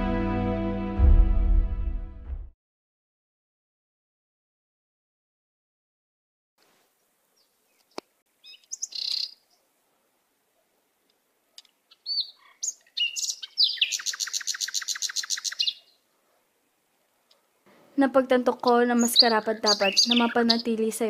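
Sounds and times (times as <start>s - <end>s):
birds chirping: 7.4s - 9.7s, 11.6s - 16.1s, 17.7s - 21.0s.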